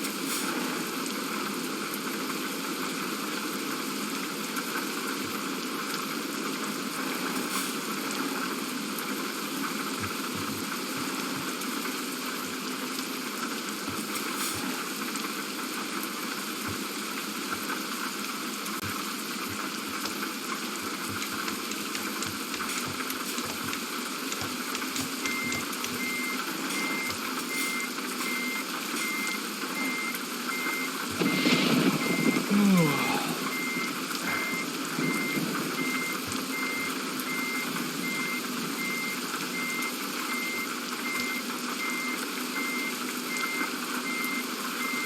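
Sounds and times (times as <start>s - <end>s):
steady running noise: 6.8s - 15.0s, 15.8s - 32.5s
high warning beeps: 25.0s - 45.0s.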